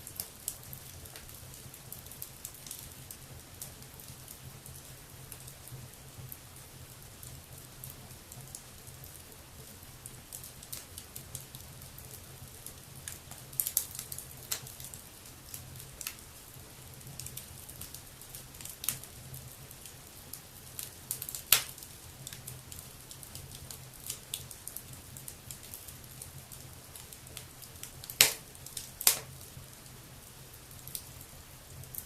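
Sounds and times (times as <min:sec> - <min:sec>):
wood fire crackling: 0:00.0 - 0:32.0
fire pops: 0:13.0 - 0:14.9, 0:20.8 - 0:22.4, 0:27.0 - 0:29.4.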